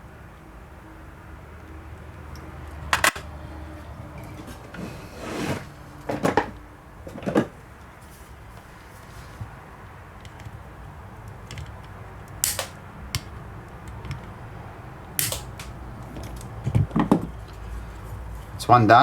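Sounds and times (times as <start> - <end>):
small plastic parts clicking: 2.3 - 3.3, 10.2 - 14.4, 15.0 - 17.1
clicks and knocks: 2.9 - 3.3.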